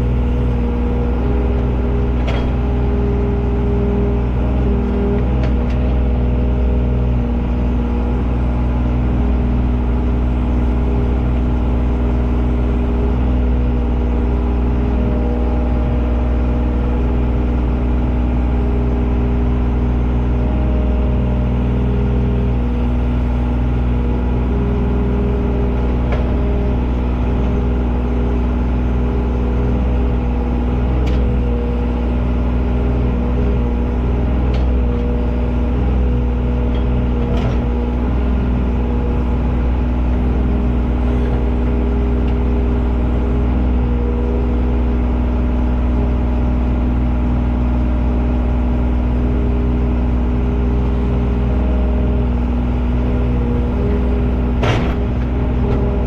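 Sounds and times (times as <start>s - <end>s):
large engine running: 0.0s - 56.0s.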